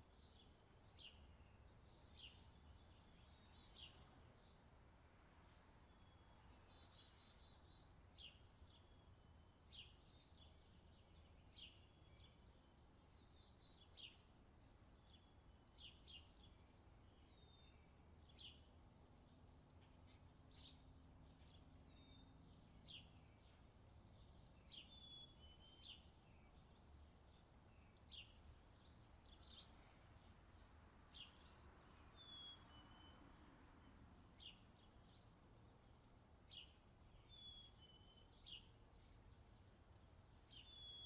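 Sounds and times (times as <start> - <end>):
faint bird chirps: 5.8 - 14.3, 19.8 - 39.7, 40.4 - 41.0.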